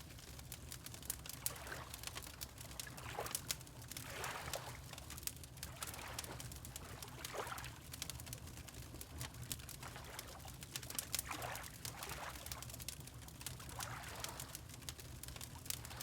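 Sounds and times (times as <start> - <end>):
wood fire crackling and popping: 0.0 - 4.1, 4.8 - 9.9, 10.5 - 13.9, 14.5 - 16.0
water lapping: 4.0 - 4.7, 11.3 - 12.4.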